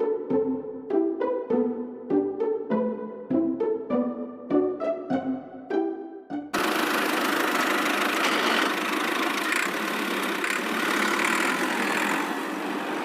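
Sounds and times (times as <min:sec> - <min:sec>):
motor running steadily: 0:06.6 - 0:13.0.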